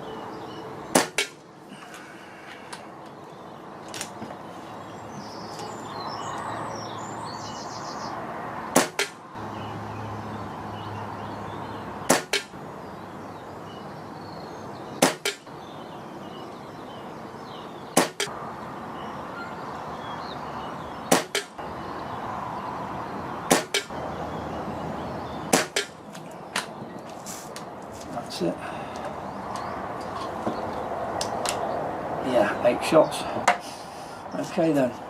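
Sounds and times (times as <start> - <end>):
air rifle shot crack: 0.9 - 1.4, 8.7 - 9.2, 12.1 - 12.5, 15.0 - 15.4, 18.0 - 18.3, 21.1 - 21.5, 23.5 - 23.9, 25.5 - 26.0
pellet striking target: 0.9 - 1.4, 8.7 - 9.2, 12.1 - 12.6, 15.0 - 15.5, 18.0 - 18.3, 21.1 - 21.6, 23.5 - 23.9, 25.5 - 26.0.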